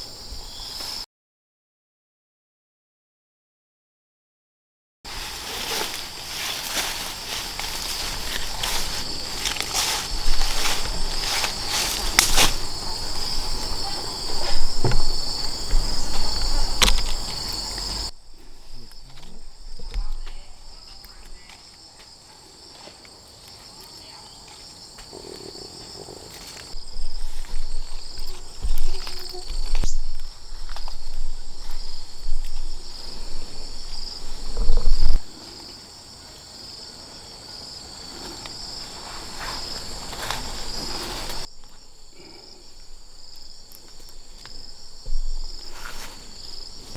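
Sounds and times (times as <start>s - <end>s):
insects trilling: 0.0s - 1.0s, 5.1s - 46.9s
rustling and knocking: 5.1s - 20.3s, 43.8s - 46.9s.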